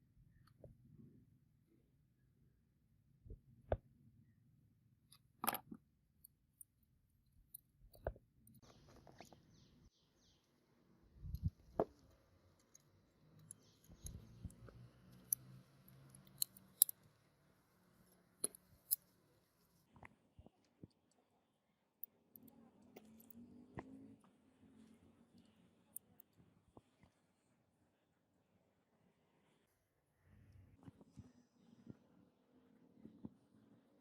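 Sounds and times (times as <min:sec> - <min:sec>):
sharp handling clicks and knocks: 0:11.3 - 0:17.0.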